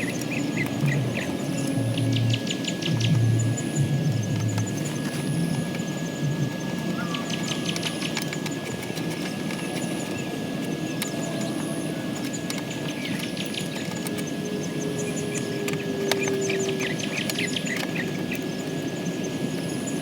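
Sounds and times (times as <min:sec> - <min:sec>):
low outdoor rumble: 0:00.0 - 0:07.4
birds chirping: 0:00.0 - 0:20.0.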